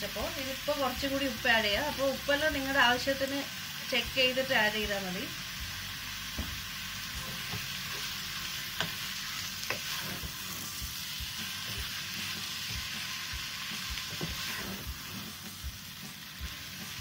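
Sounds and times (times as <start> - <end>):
chicken sizzling in a pot: 0.0 - 17.0.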